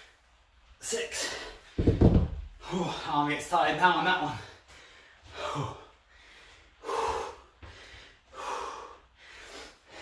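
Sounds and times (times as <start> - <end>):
man breathing hard: 4.3 - 10.0.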